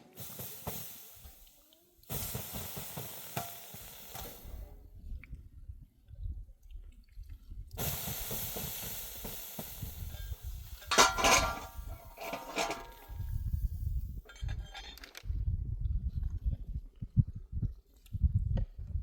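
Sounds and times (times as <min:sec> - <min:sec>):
sizzling in a hot pan: 0:00.0 - 0:04.6, 0:07.8 - 0:13.9
loud scraping clatters: 0:10.9 - 0:13.3.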